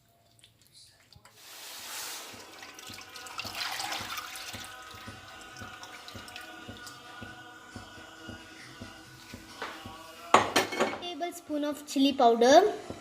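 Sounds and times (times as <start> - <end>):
wet pouring and dripping: 0.0 - 7.3.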